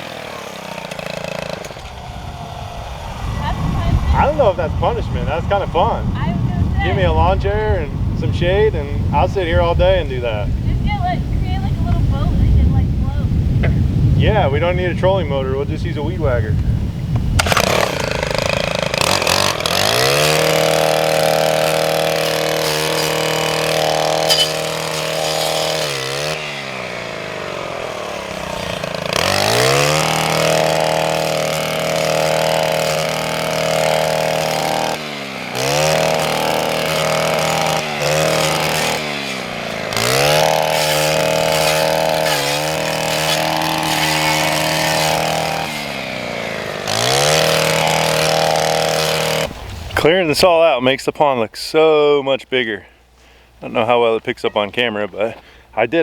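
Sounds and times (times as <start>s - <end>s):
string trimmer engine revving: 0.0s - 11.1s, 17.3s - 50.1s.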